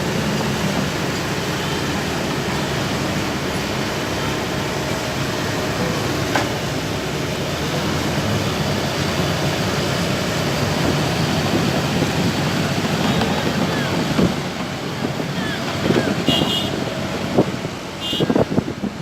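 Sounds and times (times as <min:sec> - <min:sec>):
heavy diesel engines humming: 0:00.0 - 0:19.0.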